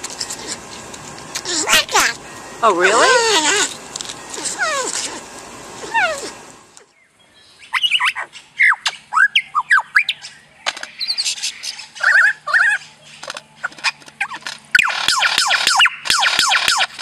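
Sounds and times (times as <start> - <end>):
bird chirping: 5.8 - 16.2.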